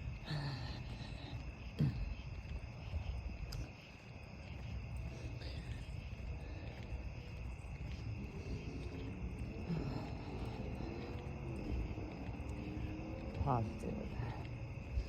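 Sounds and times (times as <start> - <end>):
crickets chirring: 0.0 - 15.0
low rumbling noise: 4.6 - 15.0.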